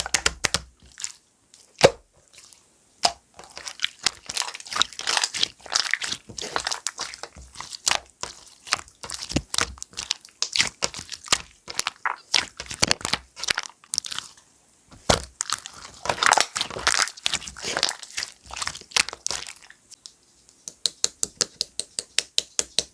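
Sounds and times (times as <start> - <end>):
slime clicking and popping: 3.0 - 14.1.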